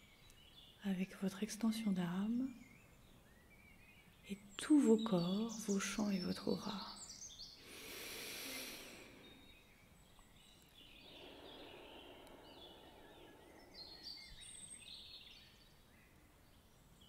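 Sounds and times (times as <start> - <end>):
small birds chirping: 0.0 - 17.0
soft rushing background: 7.6 - 16.6.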